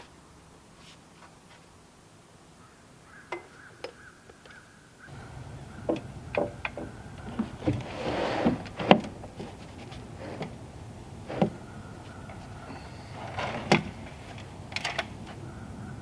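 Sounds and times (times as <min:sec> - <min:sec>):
sharp knocks and clicks: 0:05.8 - 0:07.8.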